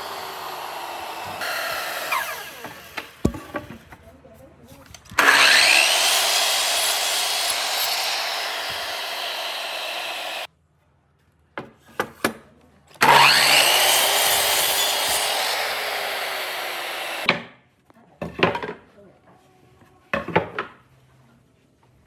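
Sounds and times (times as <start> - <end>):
power tool cutting wood: 0.0 - 3.6, 5.2 - 10.5, 13.0 - 17.3.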